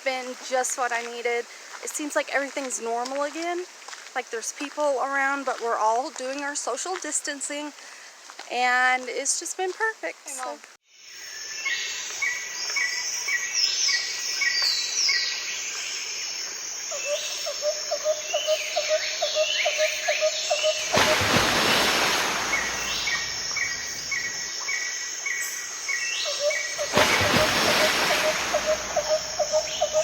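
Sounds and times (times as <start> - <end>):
outdoor ambience: 0.0 - 30.0
birds chirping: 16.9 - 30.0.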